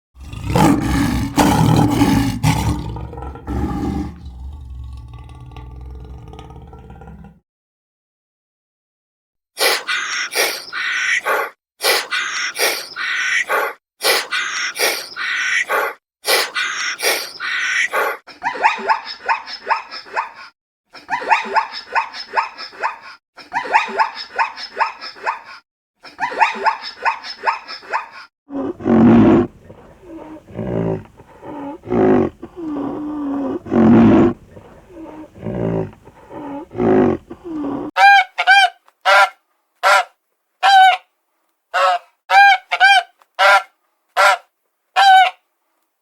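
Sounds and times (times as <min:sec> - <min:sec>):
farm animals calling: 0:28.7 - 0:41.0, 0:41.8 - 0:44.4, 0:45.0 - 0:45.4.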